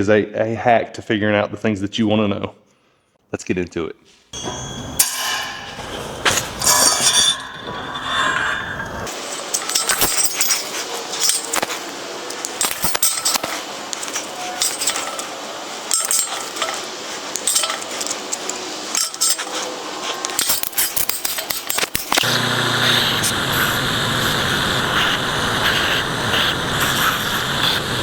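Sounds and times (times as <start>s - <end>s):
small metal pieces clinking: 4.4s - 22.3s.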